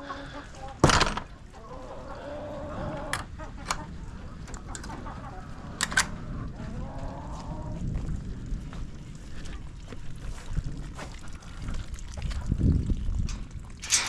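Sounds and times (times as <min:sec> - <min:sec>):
hens clucking: 0:00.0 - 0:07.9.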